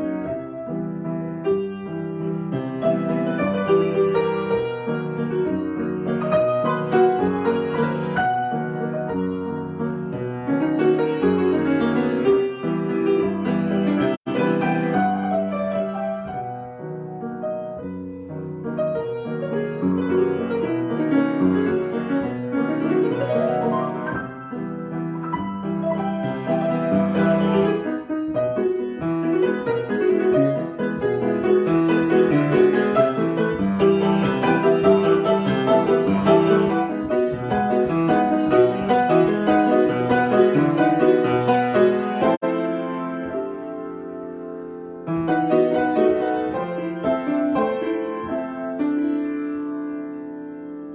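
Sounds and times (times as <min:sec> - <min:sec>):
solo piano improvisation: 0:00.0 - 0:50.9.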